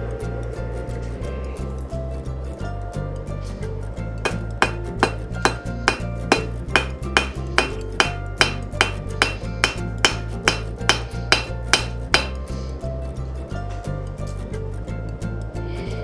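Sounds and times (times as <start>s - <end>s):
hammer striking steel on anvil: 4.3s - 12.4s.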